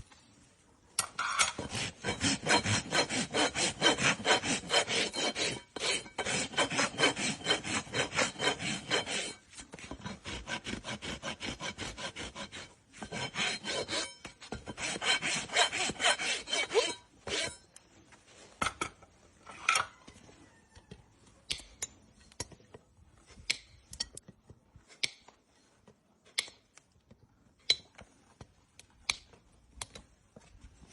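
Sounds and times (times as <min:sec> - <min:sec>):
rasp filing hoof: 0:01.5 - 0:17.7.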